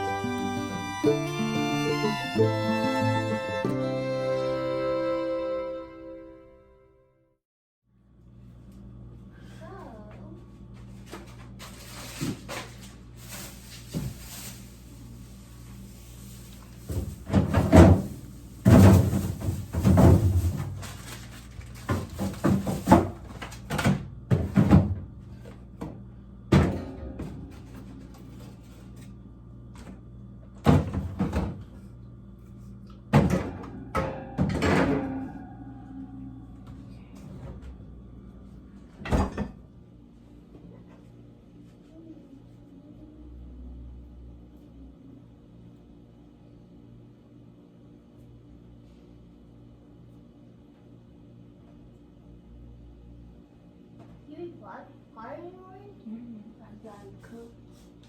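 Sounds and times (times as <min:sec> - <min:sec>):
slow string music: 0:00.0 - 0:07.1.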